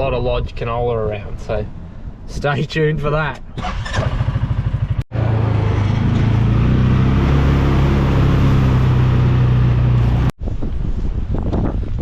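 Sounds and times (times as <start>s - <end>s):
vehicle engine humming: 4.2s - 10.4s.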